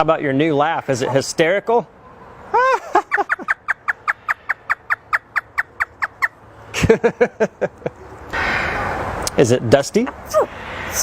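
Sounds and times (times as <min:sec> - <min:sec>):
parrot mimicking laughter: 0:02.5 - 0:06.3.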